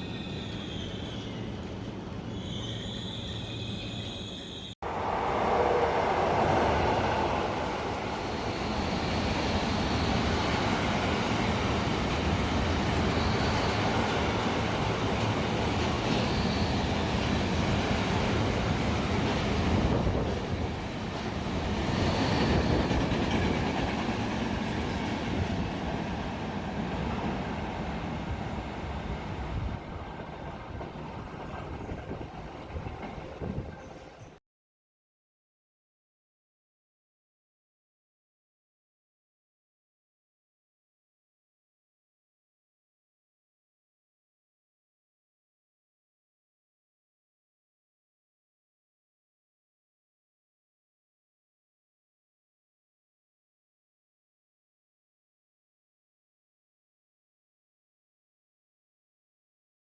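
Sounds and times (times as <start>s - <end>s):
high wheel squeals: 0.0s - 4.8s, 16.2s - 17.1s
train rumbling on rails: 0.0s - 34.4s
clickety-clack of wheels: 9.4s - 34.4s.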